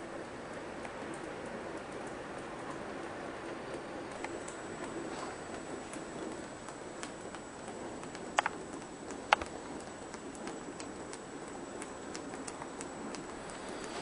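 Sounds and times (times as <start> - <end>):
rain pattering: 0.0 - 14.0
sharp drips: 0.0 - 14.0
drops ticking on hard surface: 3.7 - 14.0.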